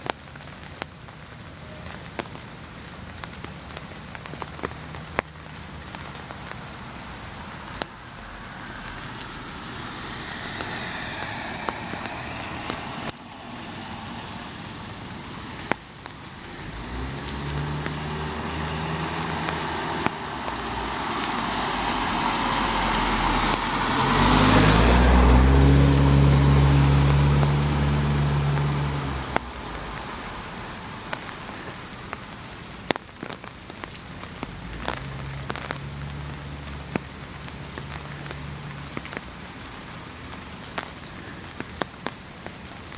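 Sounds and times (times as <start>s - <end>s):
sharp drips: 0.0s - 25.6s
steady rain: 0.0s - 42.9s
vehicle passing on wet road: 0.0s - 42.9s
vehicle engine: 4.3s - 32.1s, 34.3s - 39.4s.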